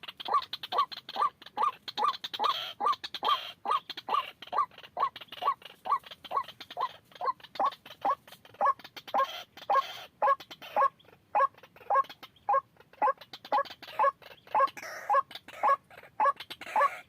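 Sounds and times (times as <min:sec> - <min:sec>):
waterhen calling: 0:00.0 - 0:17.0.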